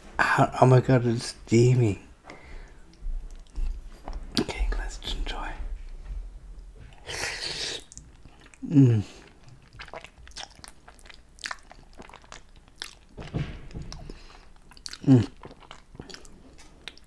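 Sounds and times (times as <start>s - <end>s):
wet chewing and lip smacks: 2.8s - 4.5s, 6.6s - 13.2s, 13.9s - 17.0s
man humming: 15.0s - 15.3s.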